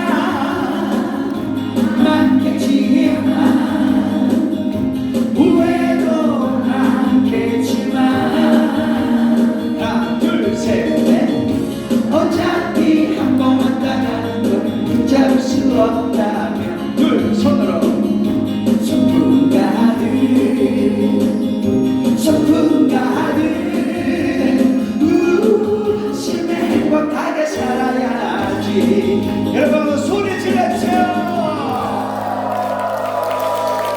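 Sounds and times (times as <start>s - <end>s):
backing track: 0.0s - 33.9s
group singing a pop song: 0.0s - 33.9s.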